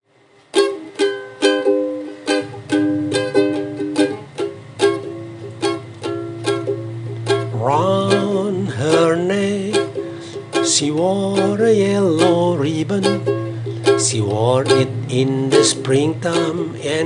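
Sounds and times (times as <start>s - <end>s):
ukulele strumming: 0.1s - 17.0s
low steady drone: 4.1s - 17.0s
person singing: 7.3s - 17.0s.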